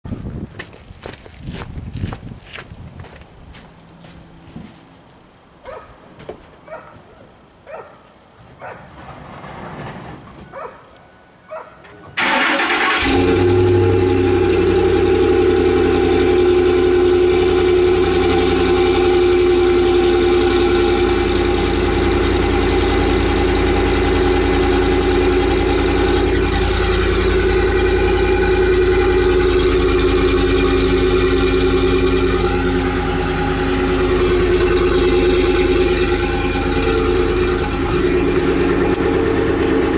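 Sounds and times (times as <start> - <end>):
loud engine idle: 12.2 - 39.9
truck engine cranking and starting: 12.2 - 39.9.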